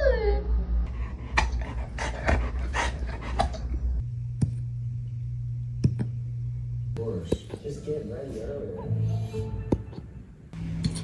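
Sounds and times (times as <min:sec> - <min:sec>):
steady low hum: 0:00.4 - 0:08.7.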